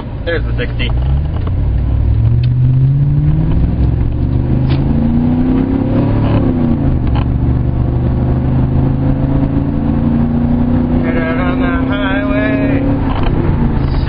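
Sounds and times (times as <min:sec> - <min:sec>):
truck engine accelerating: 0:00.0 - 0:14.0.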